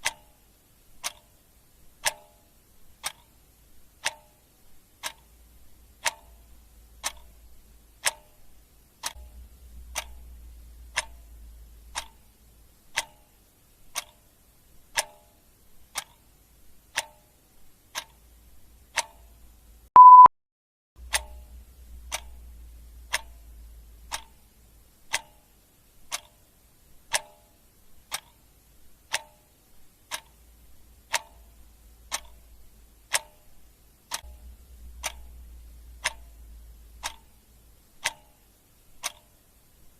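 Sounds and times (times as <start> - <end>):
clock ticking: 0.0 - 20.3, 21.0 - 39.9
short electronic beep: 20.0 - 20.3.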